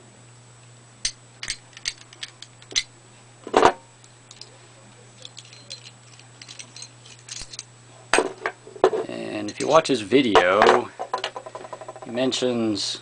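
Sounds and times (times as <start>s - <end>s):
steady low hum: 0.0s - 13.0s
rifle bolt parts clicking: 1.0s - 2.9s.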